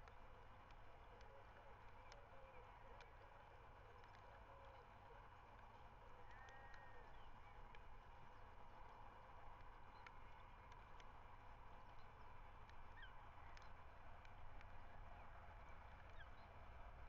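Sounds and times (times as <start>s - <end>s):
distant bird calls: 3.8s - 9.2s, 11.7s - 14.6s
small clicks: 3.9s - 4.8s, 11.8s - 14.9s.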